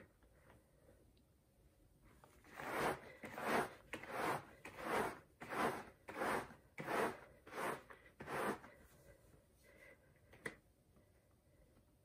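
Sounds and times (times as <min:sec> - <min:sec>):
rubber glove rubbing fabric mat: 0:02.4 - 0:09.1.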